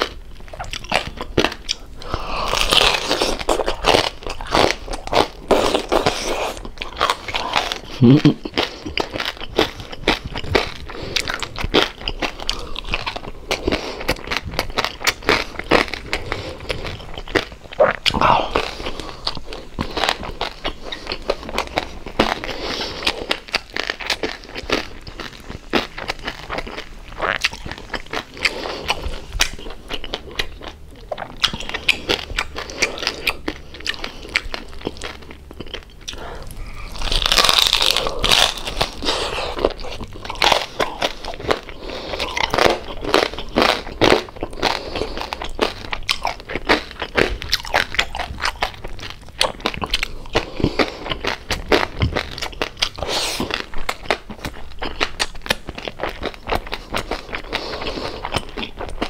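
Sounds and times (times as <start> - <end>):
crunching and chewing crispy pork: 0.0 - 59.0.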